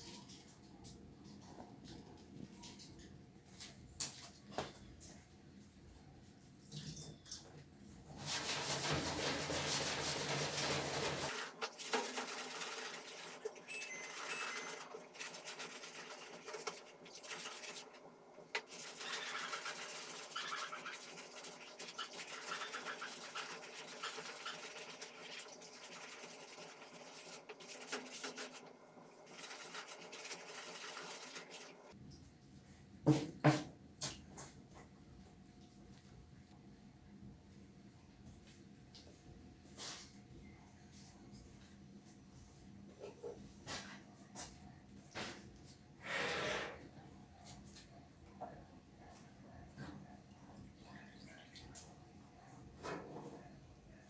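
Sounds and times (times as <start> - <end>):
scraping and rubbing on parts: 8.2 - 13.4, 18.6 - 31.6.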